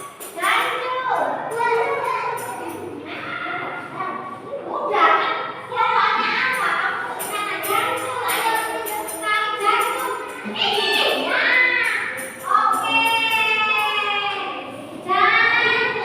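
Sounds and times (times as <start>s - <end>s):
children chanting sing-song: 5.7s - 16.0s.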